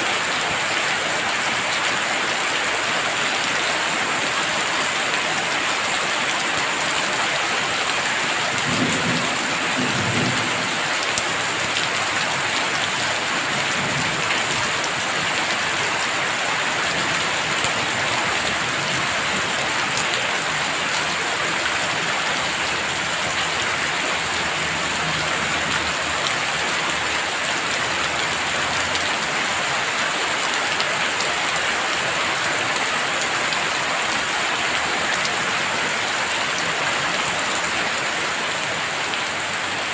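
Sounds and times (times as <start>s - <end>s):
heavy rain falling: 0.0s - 39.9s
low rumble of thunder: 8.6s - 11.6s.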